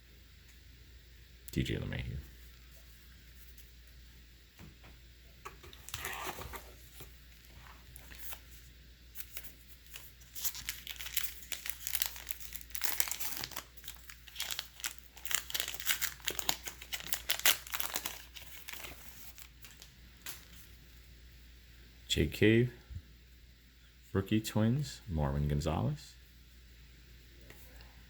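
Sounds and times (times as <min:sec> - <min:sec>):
wrapper tearing and crinkling: 0:09.2 - 0:20.6.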